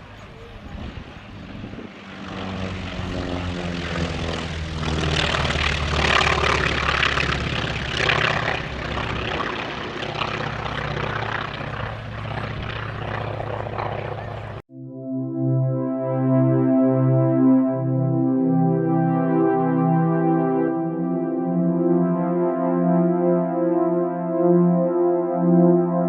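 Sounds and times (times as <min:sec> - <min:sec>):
propeller plane engine flying past: 0:00.0 - 0:14.6.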